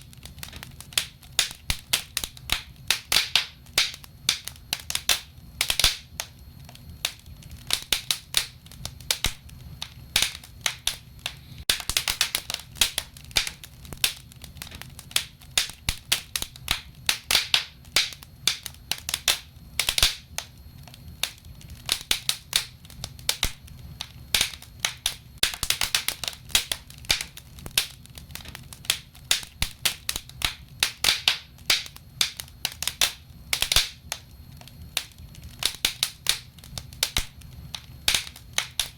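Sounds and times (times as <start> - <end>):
fire low rumble: 0.0 - 38.9
wood fire crackling and popping: 0.0 - 38.9.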